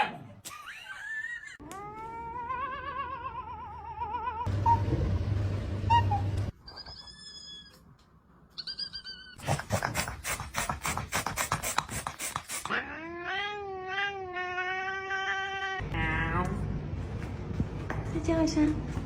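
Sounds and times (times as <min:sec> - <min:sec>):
cat yowling: 0:01.6 - 0:04.5, 0:12.7 - 0:15.8
cat chirping: 0:08.5 - 0:09.4.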